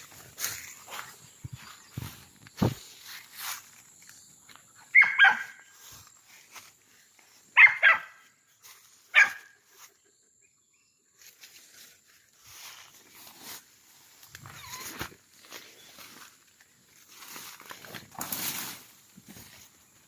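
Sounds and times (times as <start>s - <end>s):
dog barking: 4.9s - 5.6s, 7.6s - 8.2s, 9.1s - 9.6s.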